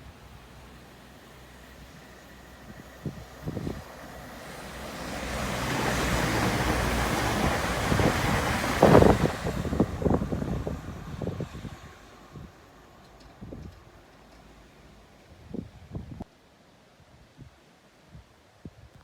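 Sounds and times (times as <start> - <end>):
wind buffeting microphone: 2.6 - 12.6, 13.3 - 13.8, 15.3 - 16.3.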